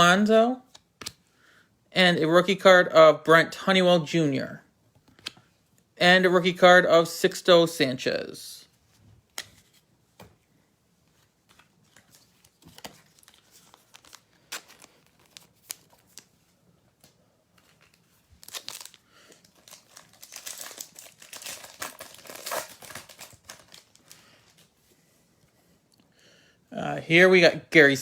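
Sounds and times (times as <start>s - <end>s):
card pack wrapper crinkling: 11.5s - 16.4s, 17.6s - 24.7s.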